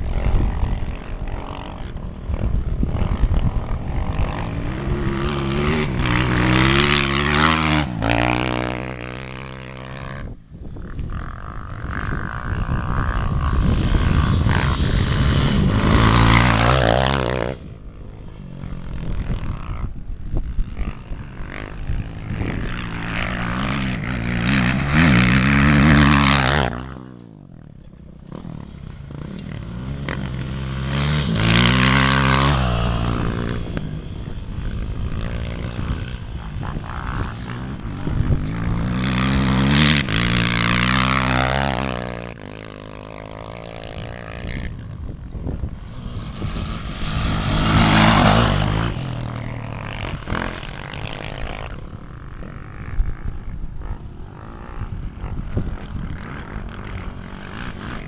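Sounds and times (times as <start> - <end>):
racing engines revving: 43.9 - 51.8.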